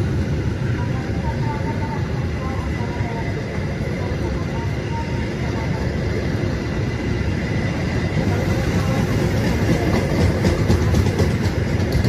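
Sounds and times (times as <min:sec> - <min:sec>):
train wheels rumbling on rail: 0:00.0 - 0:12.0
clickety-clack over rail joints: 0:08.2 - 0:12.0.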